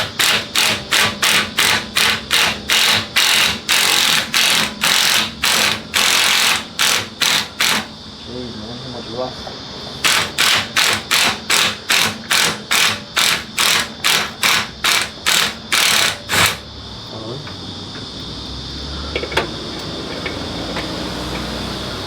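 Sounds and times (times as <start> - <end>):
ratchet wrench turning bolt: 0.0 - 7.9, 10.0 - 16.6.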